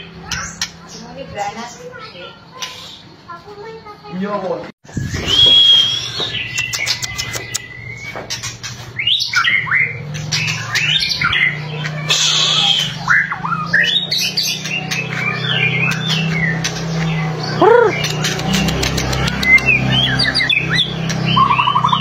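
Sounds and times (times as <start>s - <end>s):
bird whistled song: 4.9s - 8.4s, 9.0s - 22.0s
bird clicking rattle: 18.1s - 19.6s.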